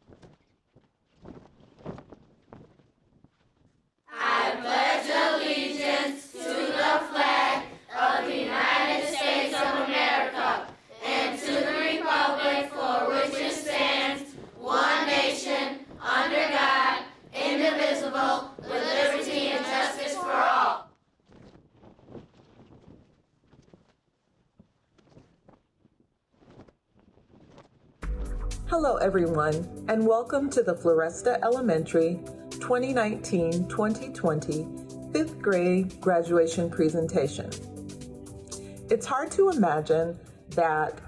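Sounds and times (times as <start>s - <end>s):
children singing together: 4.1s - 20.8s.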